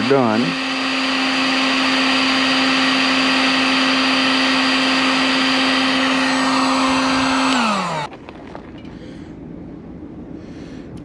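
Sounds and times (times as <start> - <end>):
heat gun fan humming: 0.0 - 8.1
rush of hot air: 0.6 - 8.1.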